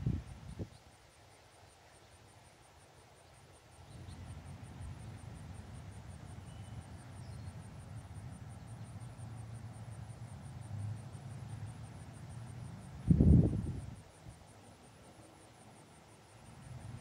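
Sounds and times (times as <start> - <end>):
faint bird chirps: 6.4 - 7.6.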